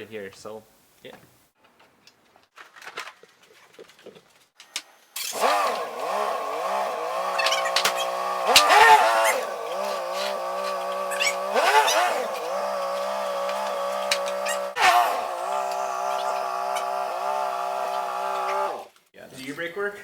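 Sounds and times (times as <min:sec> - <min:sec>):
engine revving: 0:05.2 - 0:18.9
car engine starting and idling: 0:05.3 - 0:18.9.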